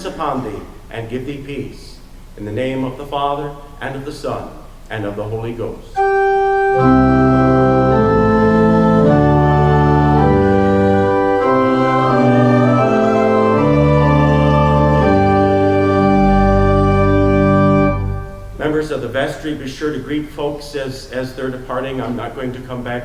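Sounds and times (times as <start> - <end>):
church organ playing chords: 6.0 - 19.1.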